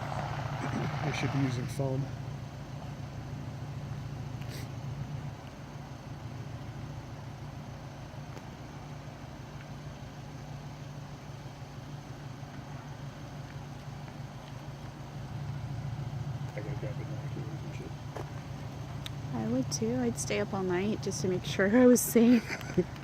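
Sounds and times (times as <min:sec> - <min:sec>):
vehicle engines idling: 0:00.0 - 0:23.0.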